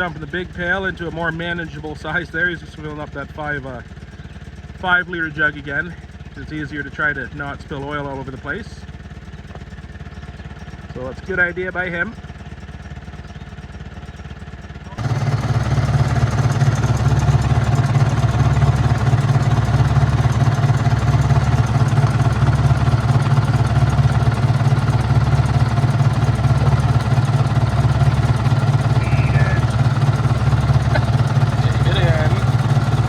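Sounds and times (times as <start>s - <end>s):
crawler loader engine running: 0.0s - 33.0s.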